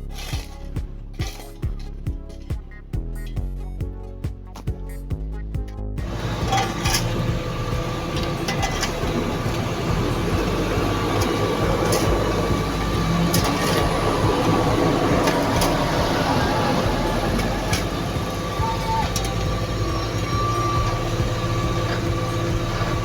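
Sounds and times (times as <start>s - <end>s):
paving machinery engine drone: 5.8s - 23.0s.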